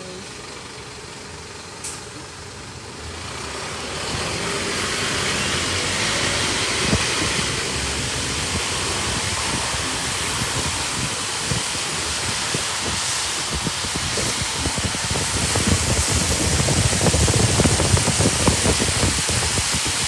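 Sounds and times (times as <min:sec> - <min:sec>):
bus engine: 0:00.0 - 0:20.0.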